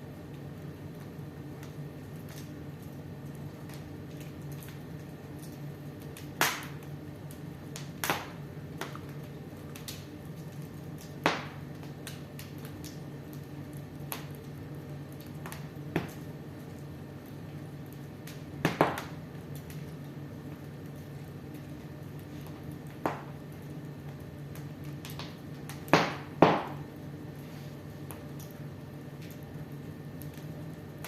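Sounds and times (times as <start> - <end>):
fire crackling and popping: 0.0 - 31.0
fire low rumble: 0.0 - 31.0.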